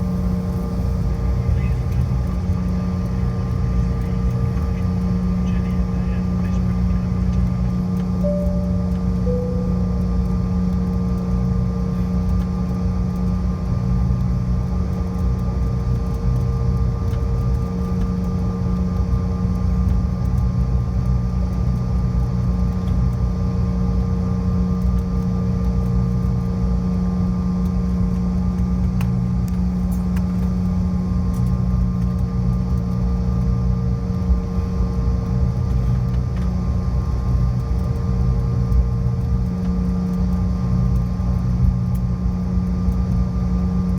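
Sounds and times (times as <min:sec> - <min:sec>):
jet engines idling cabin drone: 0:00.0 - 0:43.9.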